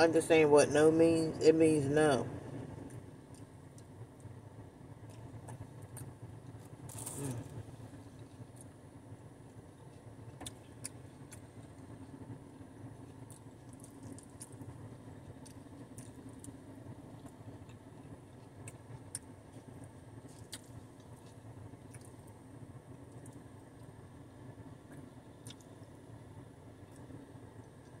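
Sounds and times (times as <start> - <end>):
low car interior hum: 0.0 - 28.0
chewing and mouth sounds: 13.0 - 22.4, 24.9 - 25.9.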